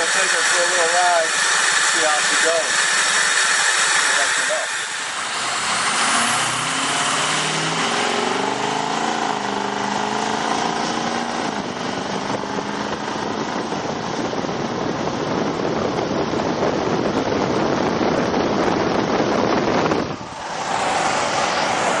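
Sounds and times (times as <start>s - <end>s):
diesel truck driving off: 4.7s - 22.0s.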